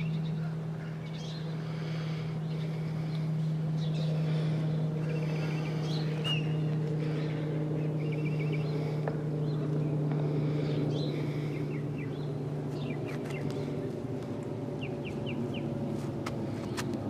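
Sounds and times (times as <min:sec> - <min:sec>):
birds chirping: 0:00.0 - 0:17.0
steady low hum: 0:00.0 - 0:17.0.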